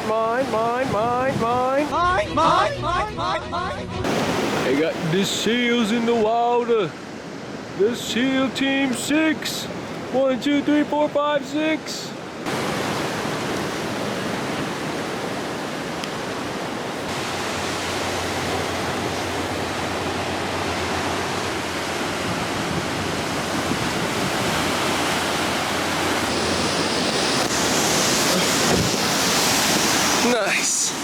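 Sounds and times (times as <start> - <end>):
wind on microphone: 0.0 - 3.0, 17.2 - 30.2
ocean surf rushing: 0.0 - 31.0.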